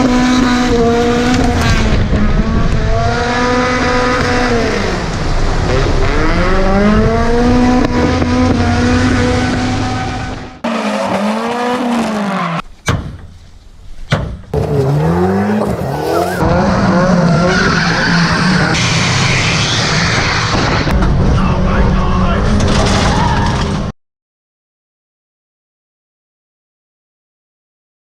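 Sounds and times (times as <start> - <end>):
car engine revving: 0.0 - 12.6, 14.5 - 23.8
tyres sliding on dirt: 14.5 - 18.7.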